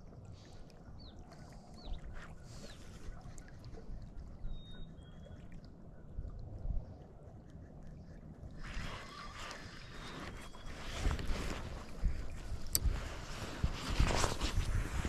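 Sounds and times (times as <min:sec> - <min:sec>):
water rumble: 0:00.0 - 0:15.0
wind rumble: 0:08.0 - 0:15.0.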